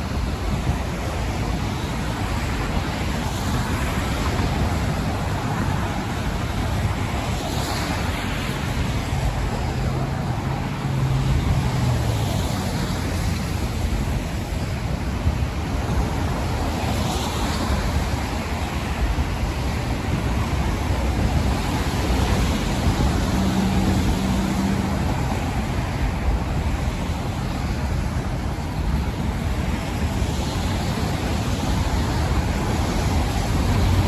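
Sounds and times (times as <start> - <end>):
heavy vehicle engine hum: 0.0 - 34.0
road traffic rushing: 0.0 - 34.0
wind: 0.0 - 34.0.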